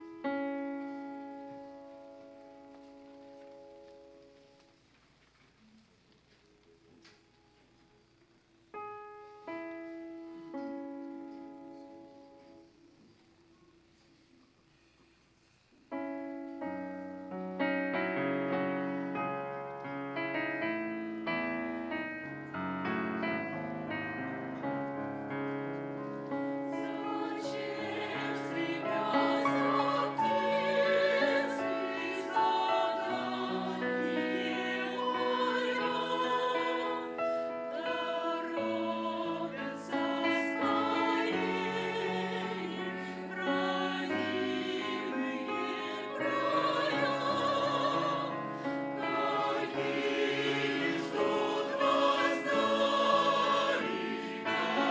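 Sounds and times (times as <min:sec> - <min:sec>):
piano accompaniment: 0:16.0 - 0:54.9
choir singing: 0:26.2 - 0:54.9.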